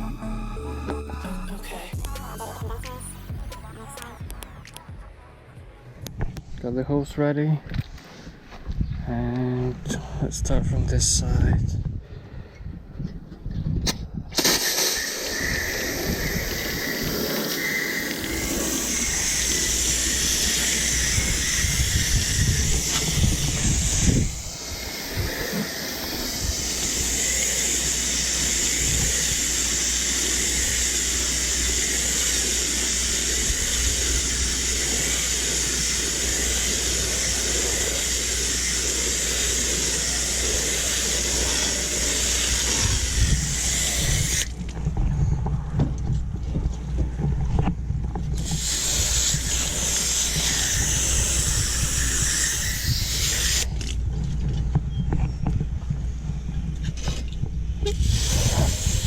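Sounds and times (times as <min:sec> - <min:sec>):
low rumble: 0:00.0 - 0:06.9
hose spraying water: 0:14.4 - 0:44.6, 0:48.4 - 0:53.8, 0:57.8 - 0:59.0.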